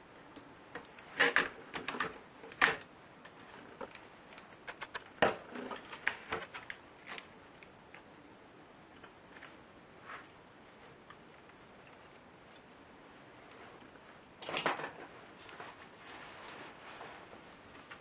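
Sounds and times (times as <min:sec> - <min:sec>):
clicks and knocks of laptop parts: 0:14.4 - 0:15.1.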